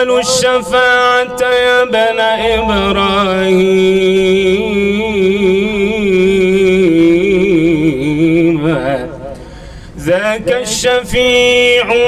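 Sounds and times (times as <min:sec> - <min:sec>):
man singing devotional chant: 0:10.0 - 0:12.0.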